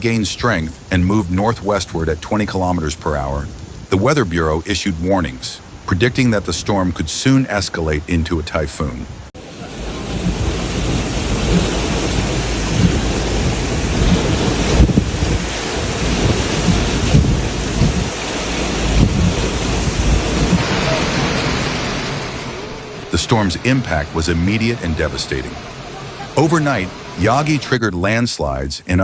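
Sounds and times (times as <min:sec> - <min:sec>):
torrential rain pouring: 0:00.0 - 0:28.6
deep continuous rumble: 0:08.8 - 0:27.6.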